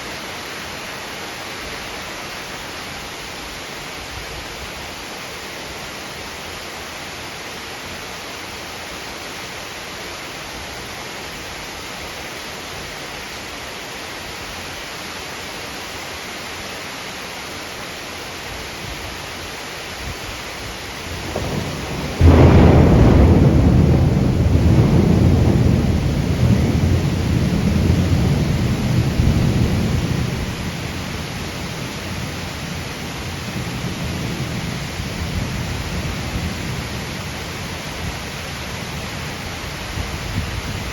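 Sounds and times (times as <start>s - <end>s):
heavy rain: 0.0s - 40.9s
thunderclap rumbling: 21.1s - 38.3s.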